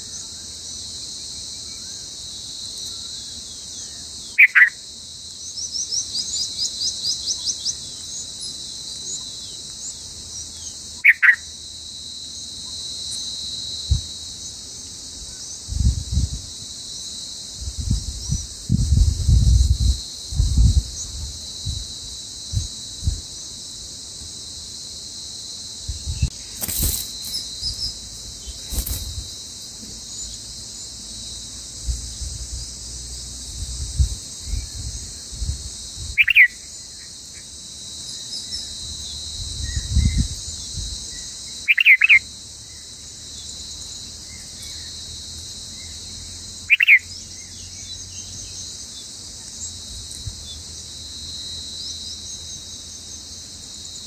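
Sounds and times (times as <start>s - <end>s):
high insect drone: 0.0s - 54.0s
nestlings chirping: 26.2s - 29.2s.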